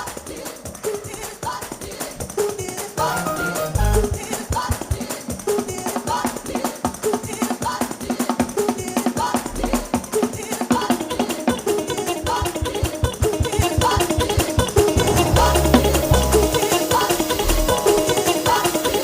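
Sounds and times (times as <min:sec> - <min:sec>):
person singing: 0:00.0 - 0:19.0
church band playing: 0:03.0 - 0:05.3, 0:11.0 - 0:19.0.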